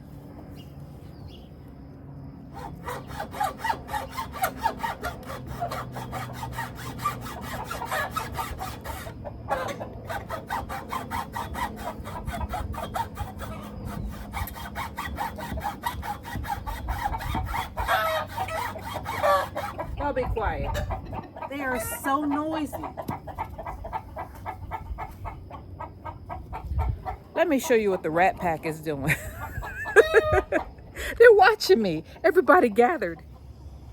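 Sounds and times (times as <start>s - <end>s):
handsaw cutting wood: 2.5s - 20.2s.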